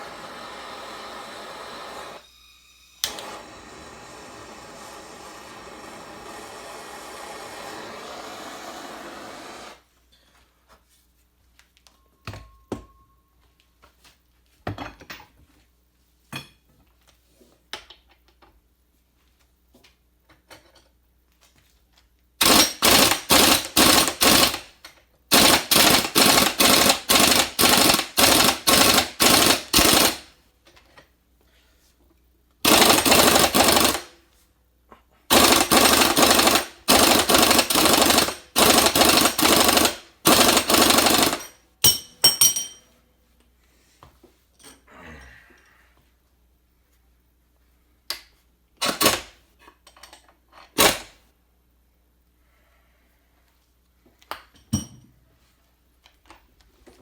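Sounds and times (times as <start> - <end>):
impact wrench hammering: 22.4 - 24.7, 25.3 - 30.3, 32.7 - 34.1, 35.3 - 42.8.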